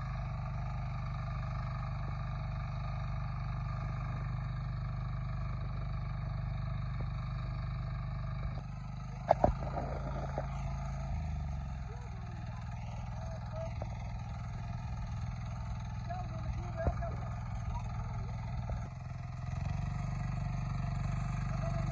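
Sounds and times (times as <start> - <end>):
tractor engine running: 0.0 - 21.9.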